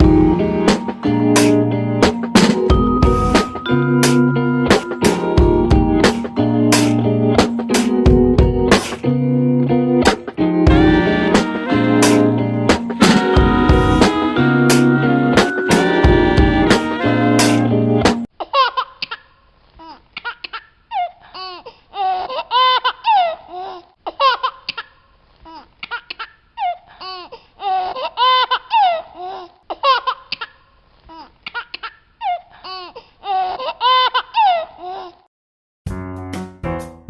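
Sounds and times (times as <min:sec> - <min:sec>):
baby laughing and giggling: 0:18.4 - 0:35.2.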